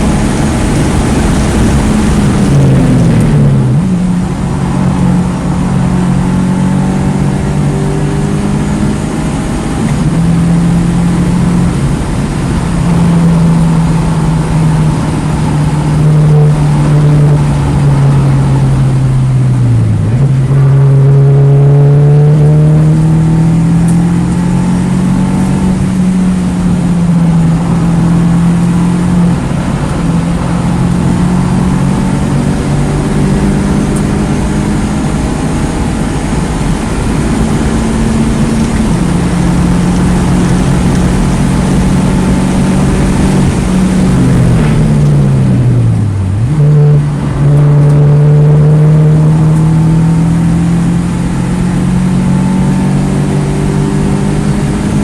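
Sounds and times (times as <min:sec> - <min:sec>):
car engine revving hard: 0:00.0 - 0:55.0
road and wind noise: 0:00.0 - 0:55.0.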